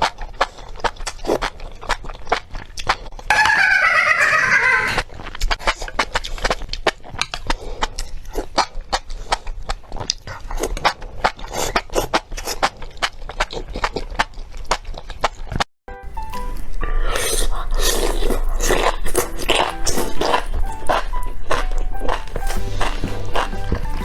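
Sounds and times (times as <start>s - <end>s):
chewing with wet mouth clicks: 0.0s - 3.3s, 5.1s - 24.0s
loud pitched sound: 19.2s - 24.0s.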